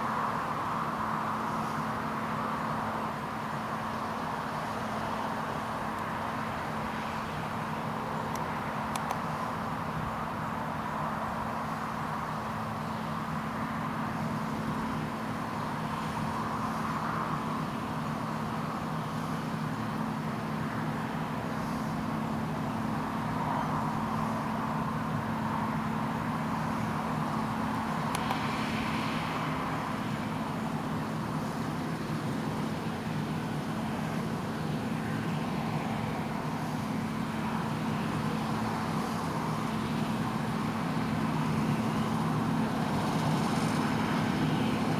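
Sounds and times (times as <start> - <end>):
combine harvester droning: 0.0 - 44.9.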